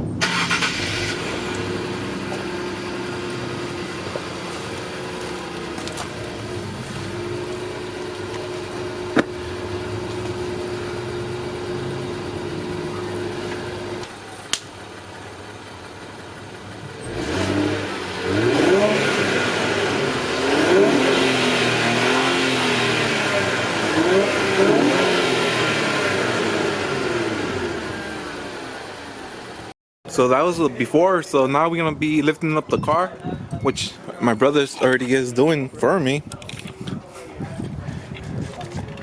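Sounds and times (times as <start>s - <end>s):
car engine idling and revving: 0.0s - 29.7s.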